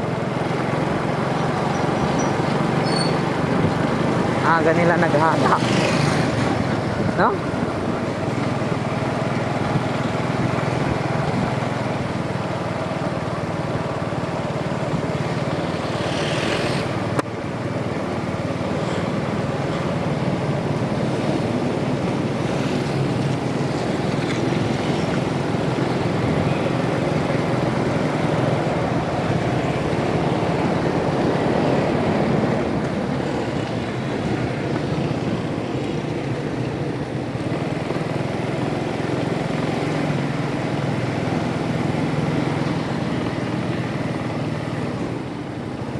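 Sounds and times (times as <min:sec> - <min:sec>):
motorcycle engine running: 0:00.0 - 0:45.9
road noise: 0:00.0 - 0:45.9
wind noise: 0:01.4 - 0:04.6.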